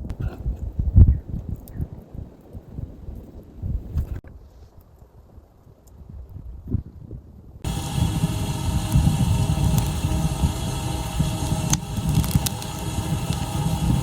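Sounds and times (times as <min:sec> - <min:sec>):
engine running with low rumble: 0:07.6 - 0:14.0
sharp ticks: 0:07.7 - 0:14.0.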